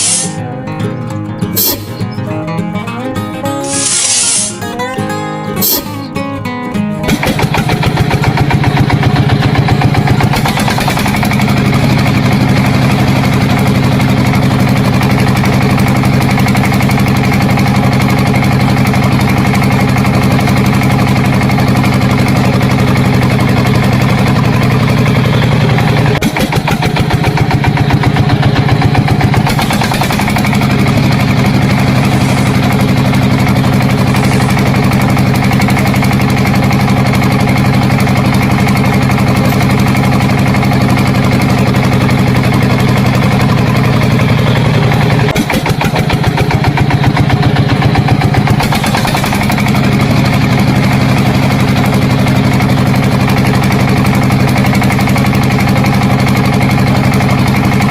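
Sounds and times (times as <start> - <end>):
small engine running with pulsing beat: 0.0 - 57.9.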